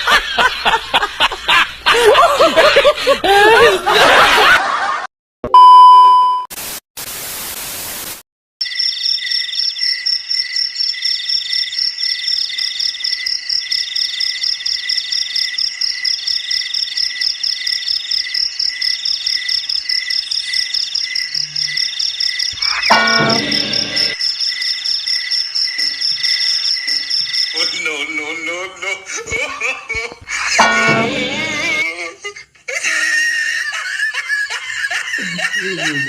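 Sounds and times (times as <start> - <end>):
burst of static hiss: 6.5 - 8.2
crickets trilling: 8.6 - 28.2.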